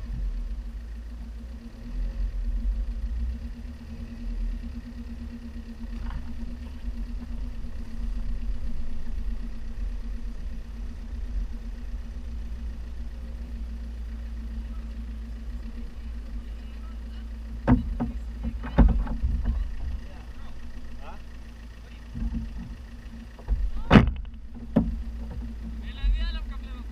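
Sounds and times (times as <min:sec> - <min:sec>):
car engine running at low revs: 0:00.0 - 0:26.9
sharp knocks: 0:17.6 - 0:20.0, 0:23.4 - 0:25.8.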